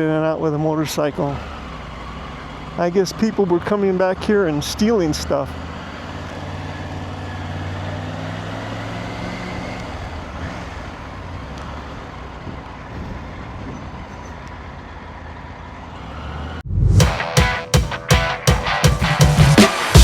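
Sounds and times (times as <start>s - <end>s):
electronic music with heavy beat: 17.0s - 20.0s.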